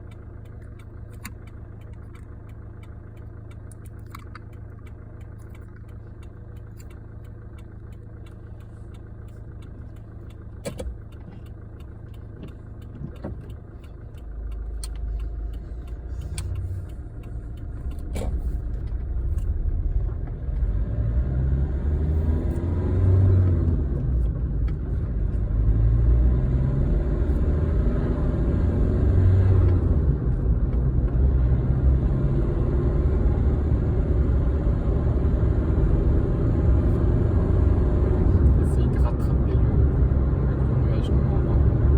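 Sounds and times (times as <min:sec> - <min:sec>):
sharp clicks: 0:00.0 - 0:20.7
car engine humming: 0:00.0 - 0:41.9
engine and road rumble: 0:00.0 - 0:41.9.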